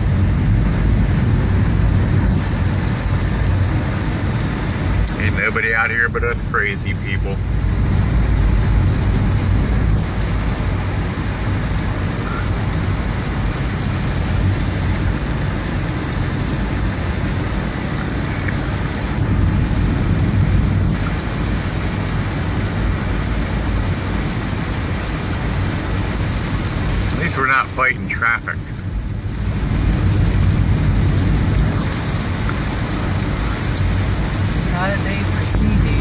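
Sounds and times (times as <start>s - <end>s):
heavy rain: 0.0s - 36.0s
low road noise rumble: 0.0s - 36.0s
tyres on wet pavement: 0.0s - 36.0s.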